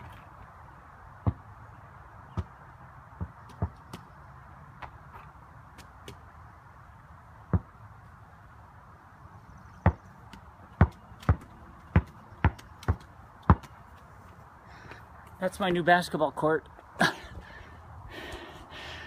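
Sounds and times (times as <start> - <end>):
basketball bouncing on hard ground: 1.2 - 1.5, 2.2 - 4.2, 4.8 - 6.3, 7.5 - 7.8, 9.8 - 14.0.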